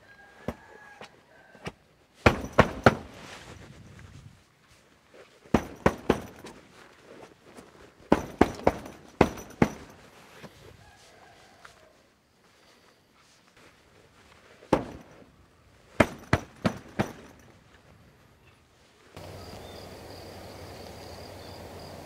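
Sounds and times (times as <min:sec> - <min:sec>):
sharp knocks: 0:02.2 - 0:03.2, 0:05.5 - 0:06.6, 0:08.1 - 0:10.0, 0:14.7 - 0:15.3, 0:16.0 - 0:17.4.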